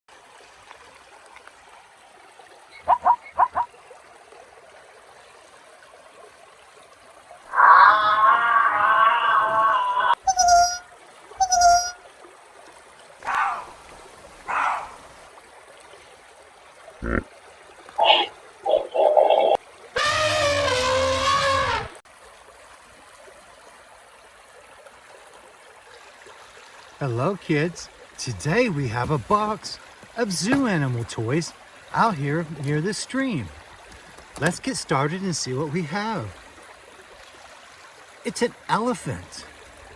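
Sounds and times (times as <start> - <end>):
stream trickling: 0.1 - 39.9
loud animal calls: 2.8 - 3.7, 7.5 - 10.8, 11.4 - 12.0, 13.2 - 13.8, 14.5 - 15.1, 17.0 - 17.2, 18.0 - 22.0.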